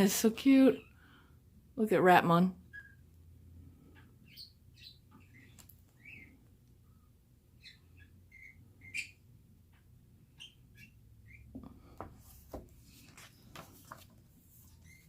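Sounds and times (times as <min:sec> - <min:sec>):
soft rustles and taps: 0:11.5 - 0:14.9.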